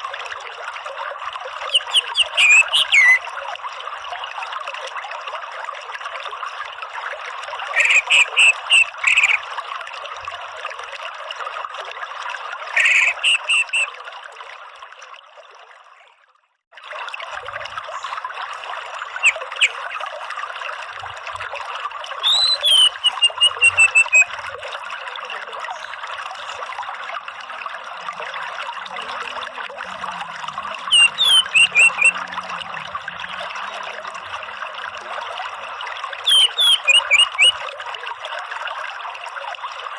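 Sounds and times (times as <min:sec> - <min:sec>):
running water trickling: 0:00.0 - 0:39.9
thrush calling: 0:01.7 - 0:03.2, 0:07.7 - 0:09.4, 0:12.7 - 0:13.9, 0:19.2 - 0:20.0, 0:22.2 - 0:24.3, 0:30.6 - 0:32.4, 0:36.3 - 0:37.6.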